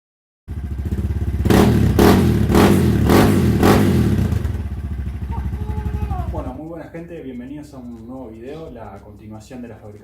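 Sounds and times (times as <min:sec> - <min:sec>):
motorcycle engine idling and revving: 0:00.5 - 0:06.7.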